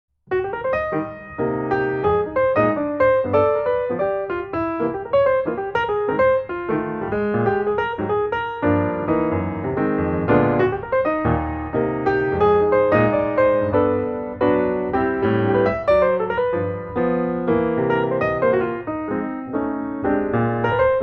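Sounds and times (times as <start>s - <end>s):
piano music: 0.3s - 21.0s.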